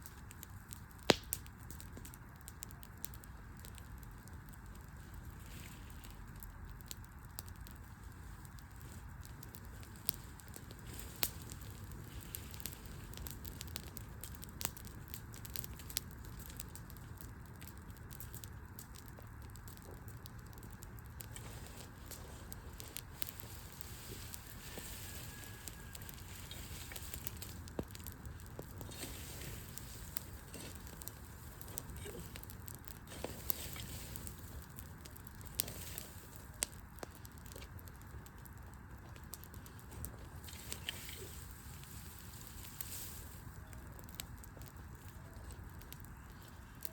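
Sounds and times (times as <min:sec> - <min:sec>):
wood fire crackling and popping: 0:00.0 - 0:46.9.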